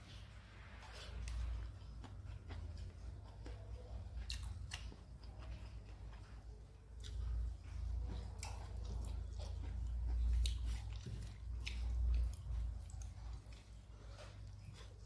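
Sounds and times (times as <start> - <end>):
close chewing of crispy food: 0.0 - 15.0.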